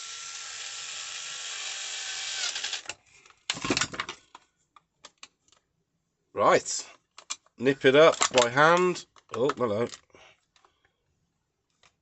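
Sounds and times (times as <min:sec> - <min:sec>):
power screwdriver running: 0:00.0 - 0:02.9.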